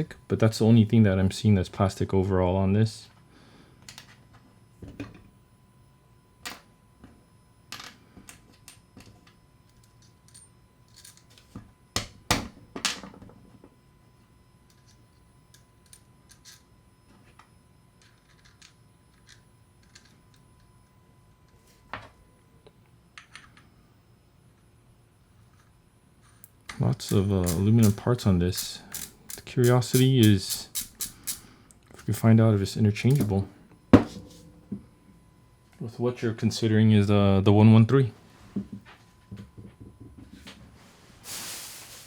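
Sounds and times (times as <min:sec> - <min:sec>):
small parts clicking and knocking: 0:07.8 - 0:12.1, 0:18.0 - 0:20.7, 0:28.6 - 0:32.1.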